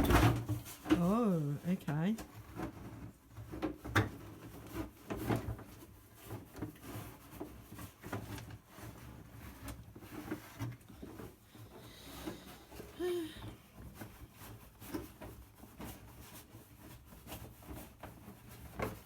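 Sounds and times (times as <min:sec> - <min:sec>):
horse knocking feed buckets: 0:00.0 - 0:01.1.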